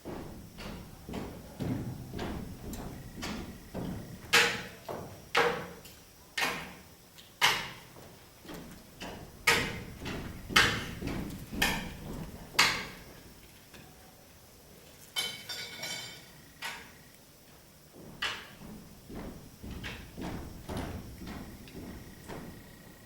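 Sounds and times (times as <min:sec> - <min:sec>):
soft knocks: 0:08.5 - 0:13.1, 0:18.0 - 0:22.8
cups and cutlery striking a table: 0:15.2 - 0:16.9.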